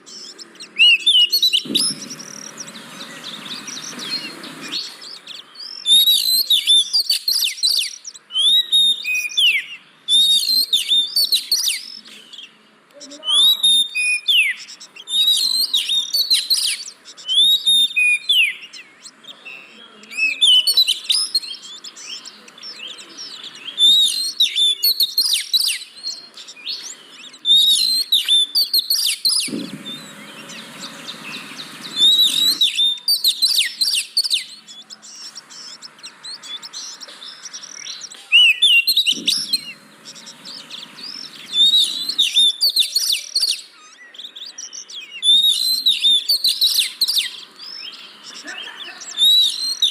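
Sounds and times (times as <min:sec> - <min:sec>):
bird song with fast high whistles: 0:00.0 - 0:12.1, 0:13.1 - 0:48.1, 0:49.0 - 0:49.9
low steady noise: 0:01.6 - 0:05.3, 0:29.4 - 0:32.8, 0:34.9 - 0:42.4.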